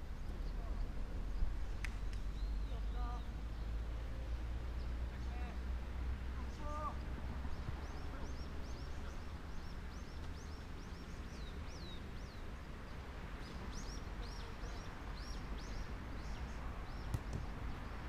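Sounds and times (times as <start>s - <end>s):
small bird chirping: 0.2s - 3.7s.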